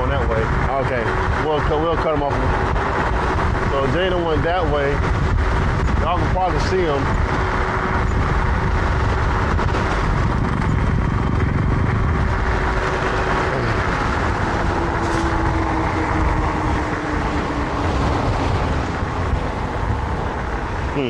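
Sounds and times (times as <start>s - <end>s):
wind on microphone: 0.0s - 21.0s
electric motor whine: 7.1s - 19.2s.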